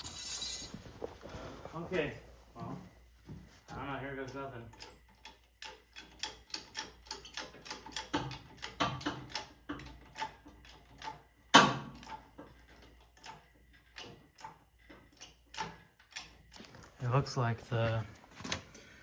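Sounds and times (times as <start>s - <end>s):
metallic clicks and clanks: 4.1s - 17.1s.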